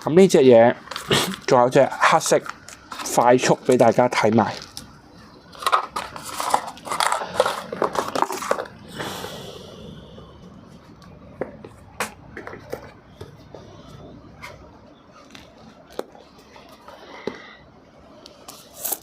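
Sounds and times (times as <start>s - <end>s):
packaging rustling and scraping: 0.8s - 9.0s, 18.4s - 19.0s.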